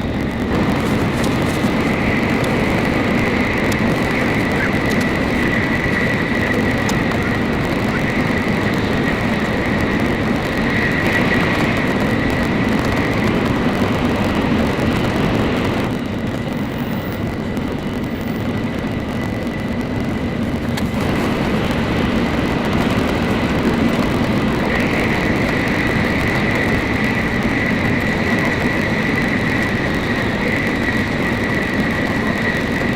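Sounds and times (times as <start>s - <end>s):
thin high whine: 0.0s - 32.9s
train cabin rumble and rushing: 0.0s - 32.9s.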